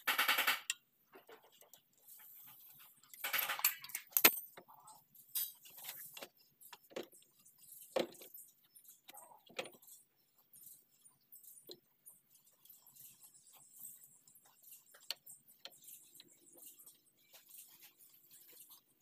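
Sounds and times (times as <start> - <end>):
metallic clinks of ratchet and wrench: 3.1 - 4.6.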